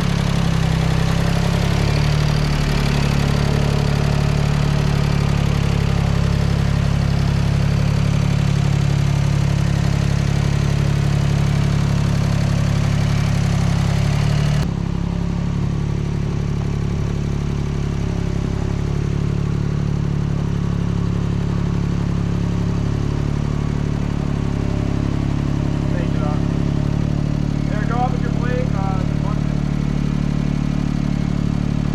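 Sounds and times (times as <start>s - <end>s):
engine idling: 0.0s - 31.9s.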